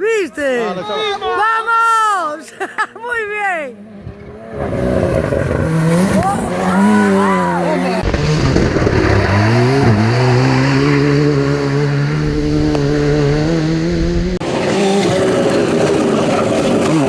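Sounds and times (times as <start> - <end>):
rally car engine accelerating hard: 3.8 - 17.0.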